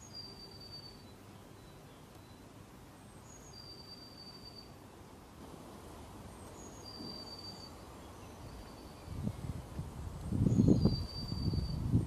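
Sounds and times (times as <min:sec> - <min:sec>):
whistled bird notes: 0:00.0 - 0:02.5, 0:03.1 - 0:04.8, 0:06.6 - 0:09.5, 0:10.4 - 0:12.0
low steady hiss: 0:00.0 - 0:12.0.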